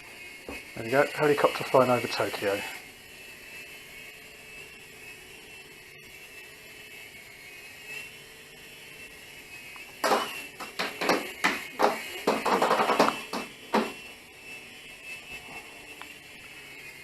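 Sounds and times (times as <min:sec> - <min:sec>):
helicopter rotors whirring: 0:00.0 - 0:17.0
loud knocks and clatters: 0:10.0 - 0:14.0.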